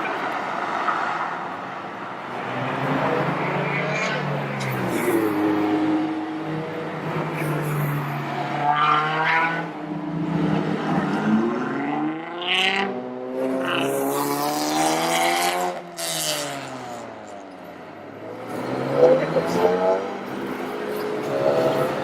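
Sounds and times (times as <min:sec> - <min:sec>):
car engine revving: 0:02.3 - 0:17.3.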